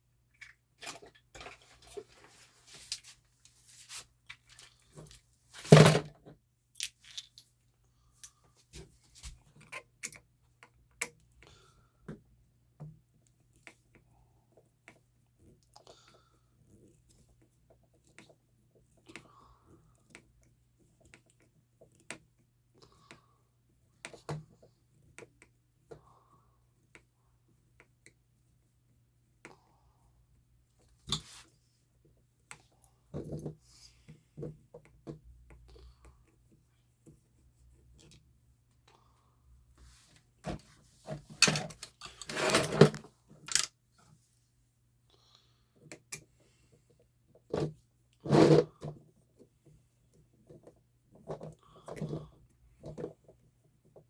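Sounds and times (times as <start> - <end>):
parts rattling and clattering: 6.8 - 7.5, 40.5 - 43.7.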